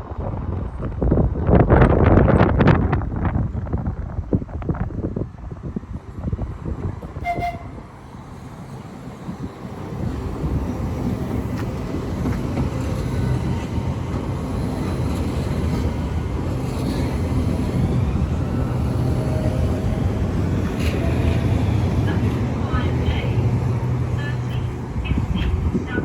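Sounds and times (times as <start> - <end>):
train rumbling: 0.0 - 26.0
train horn toot: 7.2 - 7.9.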